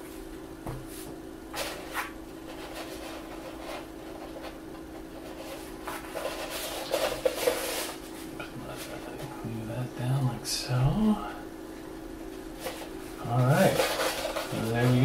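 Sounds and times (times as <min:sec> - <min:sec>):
faint steady hum: 0:00.0 - 0:15.0
paper being handled and rubbed: 0:05.2 - 0:09.0, 0:12.6 - 0:15.0.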